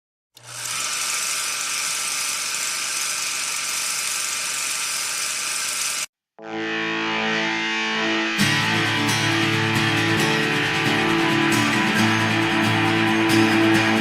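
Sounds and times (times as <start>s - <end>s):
electric guitar music: 6.4s - 14.0s.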